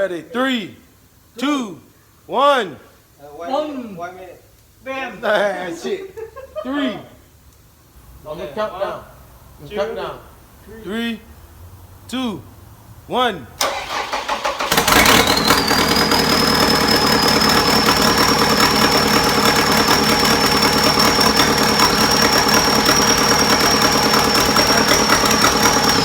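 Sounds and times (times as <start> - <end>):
engine knocking with whine: 14.6 - 26.0.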